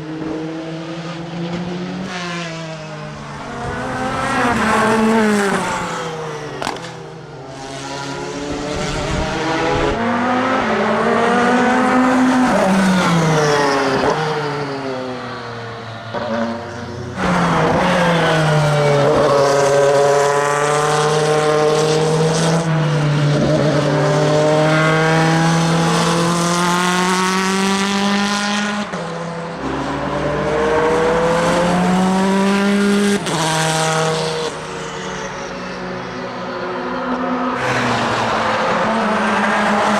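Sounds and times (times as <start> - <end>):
race car engine at speed: 0.0 - 39.9.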